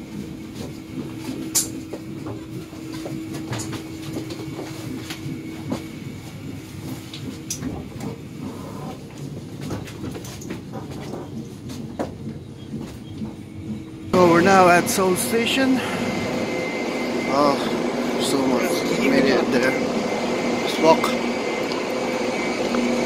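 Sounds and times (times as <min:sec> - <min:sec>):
train low rumble: 0:00.0 - 0:23.0
steady hum: 0:12.7 - 0:23.0.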